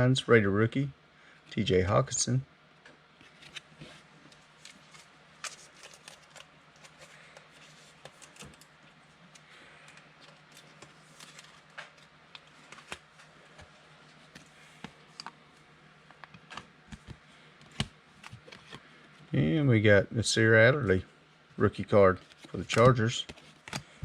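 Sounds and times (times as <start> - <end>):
low steady hum: 0.0 - 24.0
trading cards flipped by hand: 3.2 - 4.0, 22.2 - 24.0.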